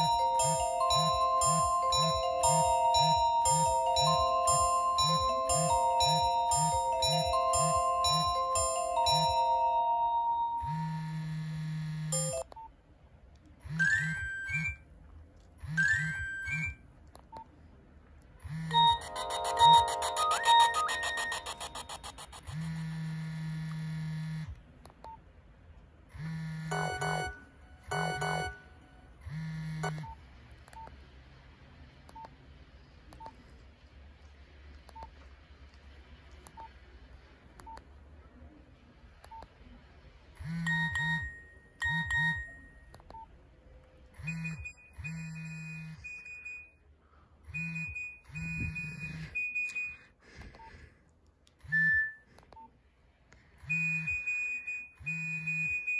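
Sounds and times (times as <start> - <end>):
phone electronic beeps: 0.0 - 9.6, 15.7 - 16.8, 18.7 - 22.4, 26.7 - 28.6, 40.4 - 43.3, 44.2 - 46.7, 47.5 - 50.0, 53.6 - 55.9.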